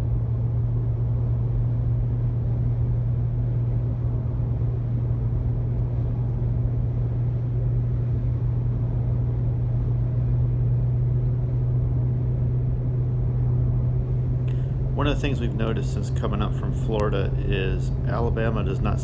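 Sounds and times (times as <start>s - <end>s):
car driving at speed: 14.1s - 19.0s.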